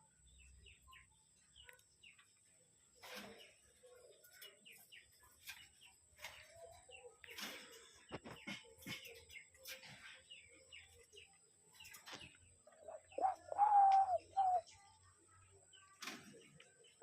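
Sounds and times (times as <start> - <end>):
faint clicks and chirps: 0.9 - 17.0
dove cooing: 12.6 - 14.8.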